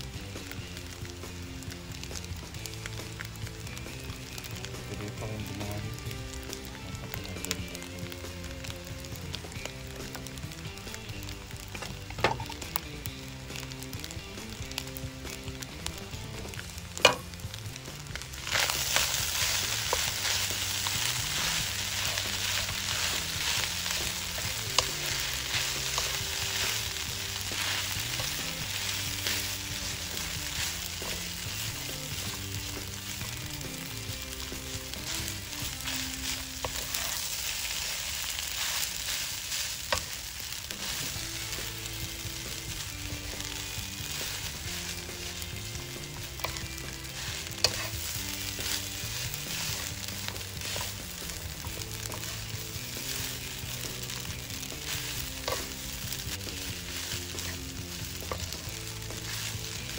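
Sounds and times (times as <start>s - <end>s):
rice sizzling in a pan: 0.0s - 59.9s
wooden spatula scraping pan: 35.0s - 39.2s, 46.3s - 59.9s.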